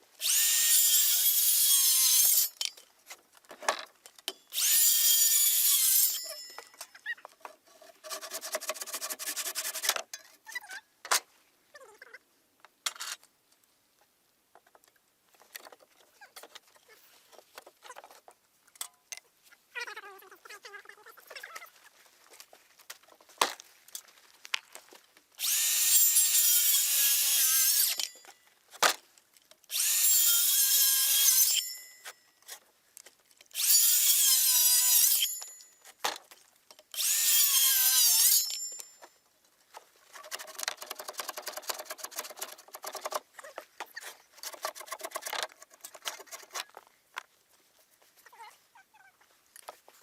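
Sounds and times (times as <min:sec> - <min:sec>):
power tool cutting wood: 0:00.2 - 0:02.5, 0:04.5 - 0:06.2, 0:25.4 - 0:28.0, 0:29.7 - 0:31.6, 0:33.6 - 0:35.4, 0:37.0 - 0:38.6.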